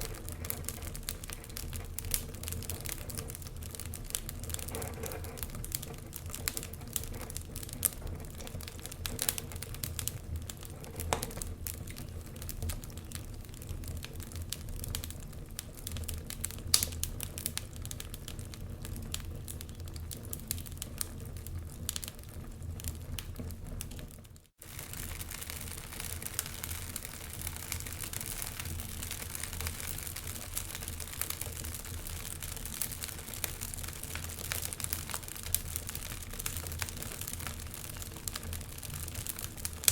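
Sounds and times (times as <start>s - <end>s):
log fire crackling: 0.0s - 39.9s.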